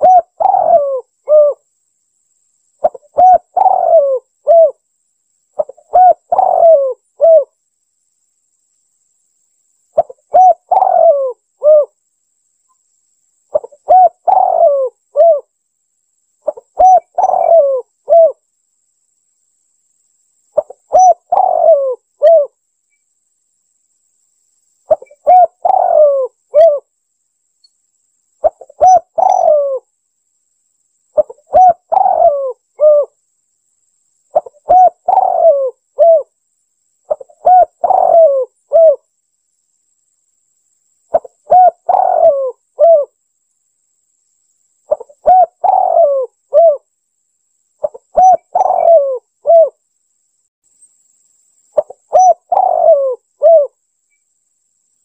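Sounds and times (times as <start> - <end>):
dove cooing: 0.0 - 1.6, 2.8 - 4.8, 5.6 - 7.5, 10.0 - 12.0, 13.5 - 15.5, 16.4 - 18.4, 20.6 - 22.6, 24.9 - 26.9, 28.4 - 29.9, 31.2 - 33.2, 34.3 - 36.3, 37.1 - 39.0, 41.1 - 43.2, 44.9 - 46.9, 47.8 - 49.8, 51.8 - 53.8.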